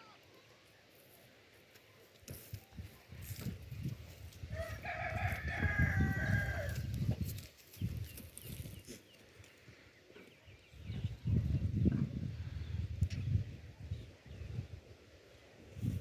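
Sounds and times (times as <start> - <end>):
rooster crowing: 4.5 - 6.9.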